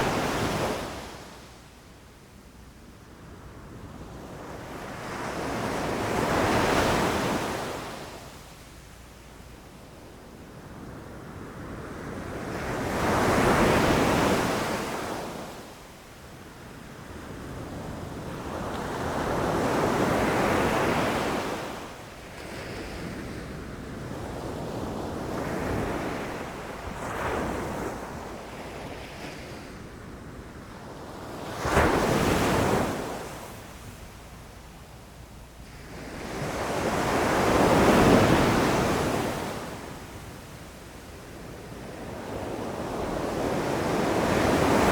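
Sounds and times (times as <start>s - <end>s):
ocean waves breaking on shore: 0.0s - 1.5s, 16.9s - 35.0s, 35.6s - 44.9s.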